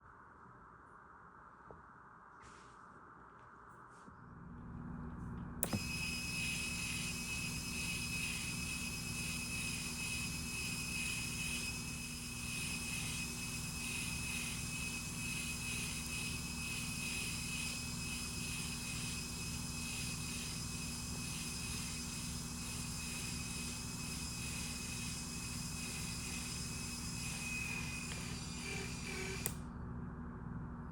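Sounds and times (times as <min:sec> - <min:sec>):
click: 0:05.6 - 0:05.9, 0:27.7 - 0:29.6
high steady whine: 0:05.6 - 0:29.8.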